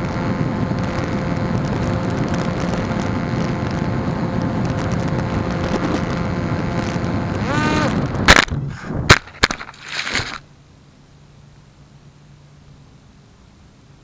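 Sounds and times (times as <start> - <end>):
motor whine rising and falling: 0.0 - 8.6
electric motor and airflow: 0.0 - 10.5.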